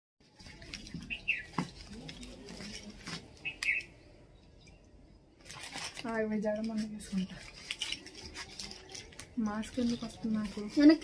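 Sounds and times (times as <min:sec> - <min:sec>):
bird chirping: 0:00.8 - 0:01.7, 0:03.3 - 0:05.3.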